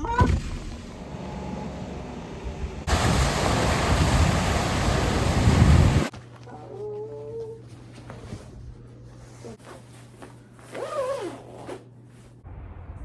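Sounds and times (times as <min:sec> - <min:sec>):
low hum: 0:12.4 - 0:13.0.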